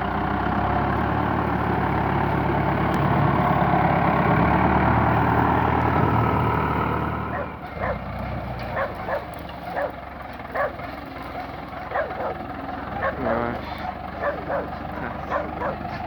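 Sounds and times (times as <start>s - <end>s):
tractor diesel engine running: 0.0s - 16.0s
dog barking: 7.3s - 8.0s, 8.7s - 12.4s, 13.0s - 16.0s.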